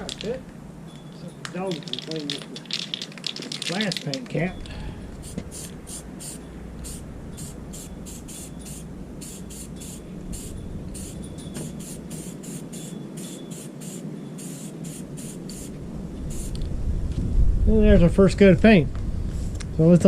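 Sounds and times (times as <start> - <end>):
spray paint can hissing: 1.7 - 4.3, 5.2 - 15.7, 16.3 - 16.6.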